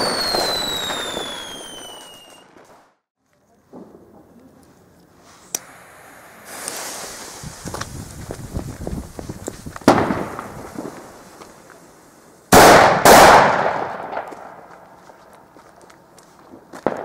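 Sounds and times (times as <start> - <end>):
firecrackers banging with echo: 9.8 - 11.6, 12.5 - 14.8.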